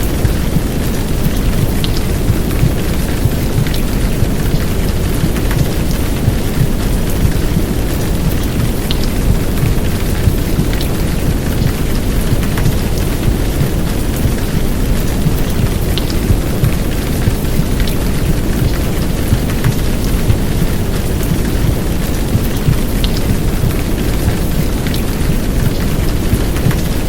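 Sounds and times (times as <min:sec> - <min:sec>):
heavy rain downpour: 0:00.0 - 0:27.0.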